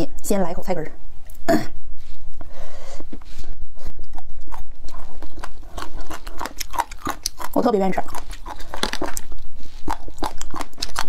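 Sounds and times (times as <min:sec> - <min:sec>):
person chewing wetly: 0:03.8 - 0:11.0.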